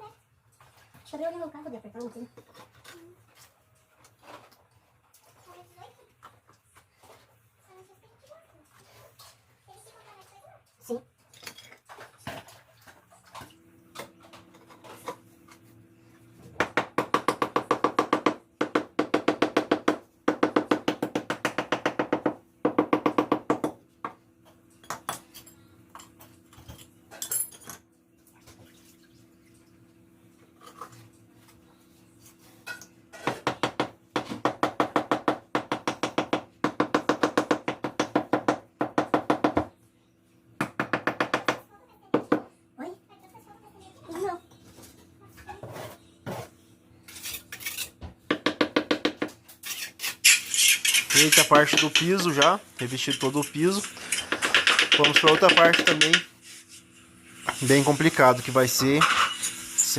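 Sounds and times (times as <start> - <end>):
tapping on firebricks: 50.9 - 56.3.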